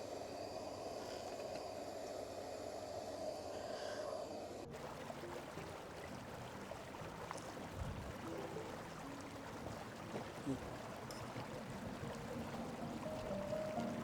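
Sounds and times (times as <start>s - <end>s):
river rushing: 4.8s - 14.0s.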